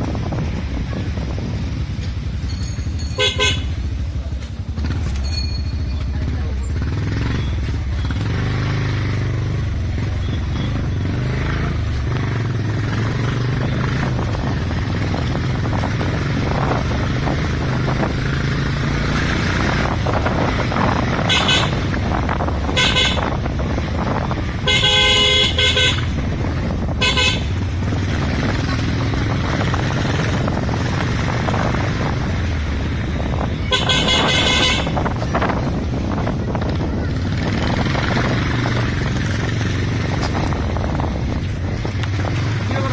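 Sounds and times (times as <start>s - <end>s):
motorcycle engine drone: 0.0s - 42.9s
road noise: 0.0s - 42.9s
vehicle horn honking: 3.0s - 3.9s, 21.1s - 21.9s, 22.6s - 26.3s, 26.9s - 27.7s, 33.5s - 35.3s.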